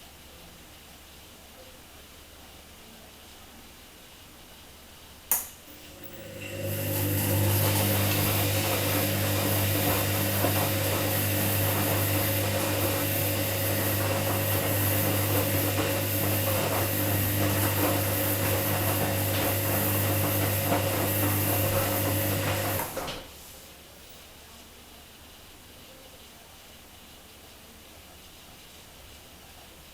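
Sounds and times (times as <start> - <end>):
washing machine running: 5.7 - 23.5.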